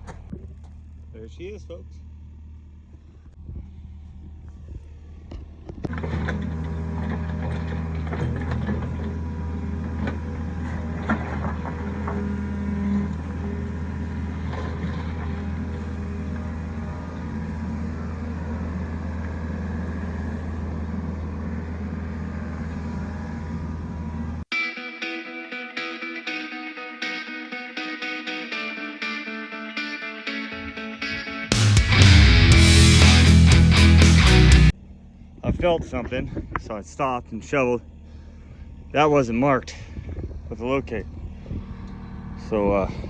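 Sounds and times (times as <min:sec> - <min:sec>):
guitar music: 0:24.5 - 0:34.7
excavator diesel engine running: 0:27.3 - 0:34.7.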